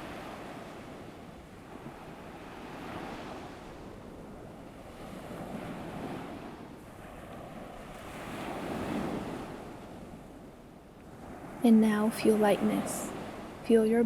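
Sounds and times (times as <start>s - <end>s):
ocean waves on a beach: 0.0s - 14.0s.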